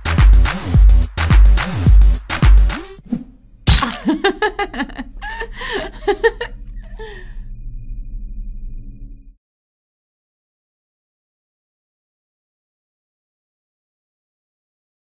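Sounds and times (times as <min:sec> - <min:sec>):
drum machine beat: 0:00.0 - 0:03.0
low steady hum: 0:03.4 - 0:09.4
person laughing and gasping: 0:03.7 - 0:07.4.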